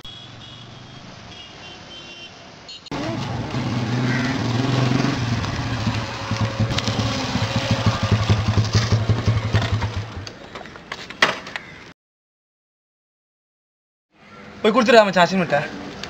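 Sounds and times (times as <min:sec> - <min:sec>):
motorcycle engine running: 0:02.9 - 0:10.2.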